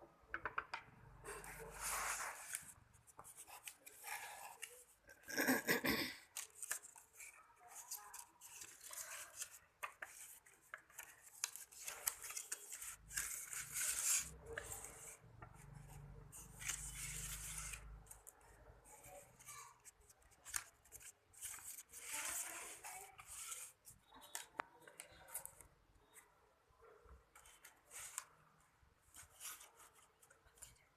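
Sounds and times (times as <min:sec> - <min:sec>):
paper rustling: 0:01.4 - 0:05.5, 0:06.3 - 0:25.6.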